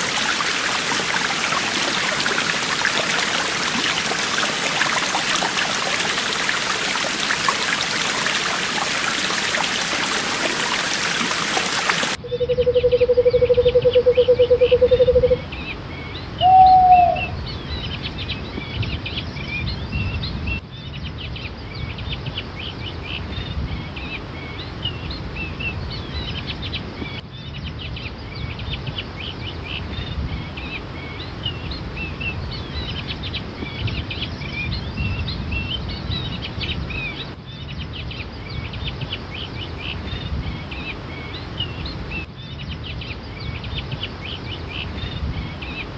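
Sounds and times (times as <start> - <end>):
stream water rushing: 0.0 - 12.2
low trilling bird call: 12.2 - 15.4, 16.4 - 17.4
rising-and-falling bird call: 16.4 - 17.4.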